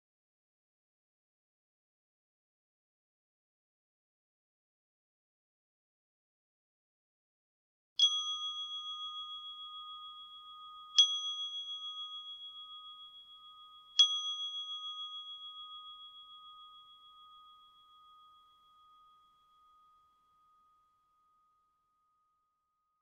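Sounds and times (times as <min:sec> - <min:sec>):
meditation bell ringing: 0:08.0 - 0:22.7.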